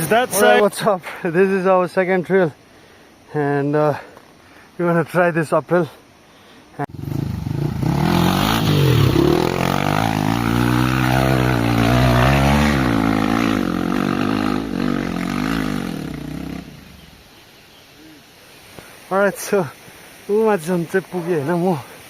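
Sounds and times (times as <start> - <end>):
dirt bike engine revving: 6.9 - 17.1.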